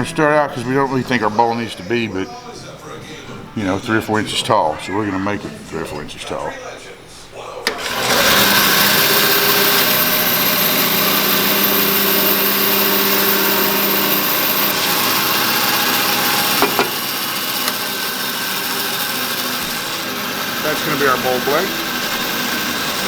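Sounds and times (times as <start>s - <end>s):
power tool cutting wood: 7.6s - 23.0s.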